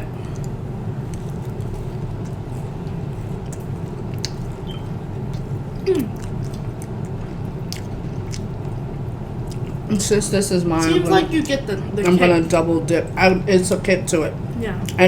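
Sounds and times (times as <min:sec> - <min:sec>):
low background hum: 0:00.0 - 0:15.0
close-up chewing: 0:00.2 - 0:09.9
mouth clicks: 0:04.2 - 0:08.5.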